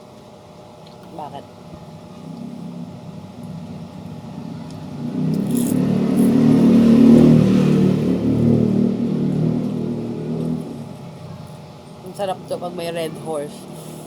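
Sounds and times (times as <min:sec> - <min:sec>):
vehicle engine passing by: 0:02.1 - 0:11.7.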